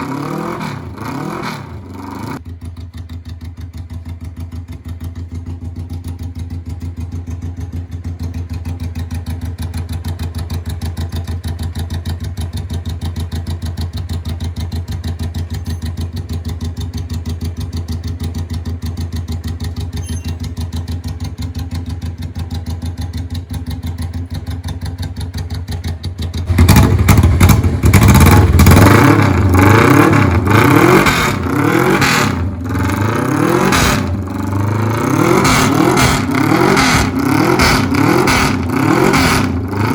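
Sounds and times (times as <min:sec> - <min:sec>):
motorcycle engine revving: 0:00.0 - 0:39.9
motorcycle engine idling: 0:01.8 - 0:30.5.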